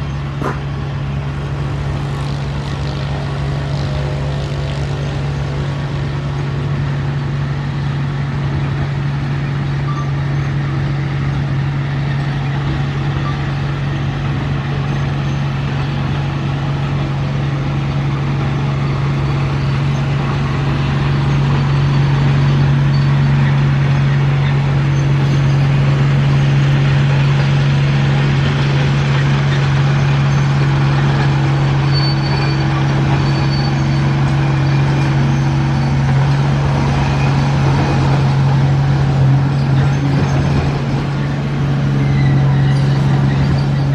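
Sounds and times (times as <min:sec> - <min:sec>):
heavy diesel engine droning: 0:00.0 - 0:43.9.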